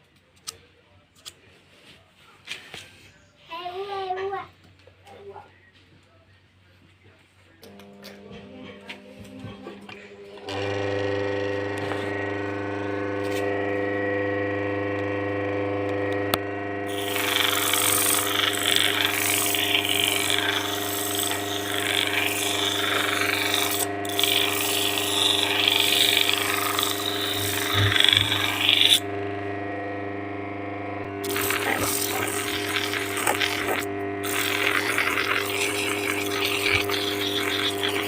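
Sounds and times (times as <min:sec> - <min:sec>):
electric motor humming: 0:07.7 - 0:38.0
coconut shell grinding on sander: 0:07.8 - 0:38.0.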